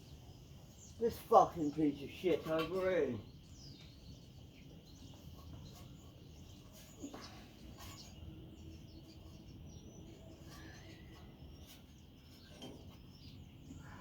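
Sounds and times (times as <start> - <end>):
faint bird chirps: 3.2 - 14.0.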